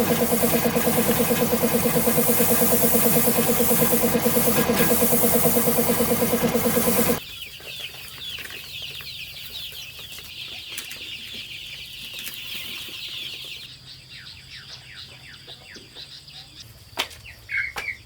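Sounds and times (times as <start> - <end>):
small engine running: 0.0 - 7.2.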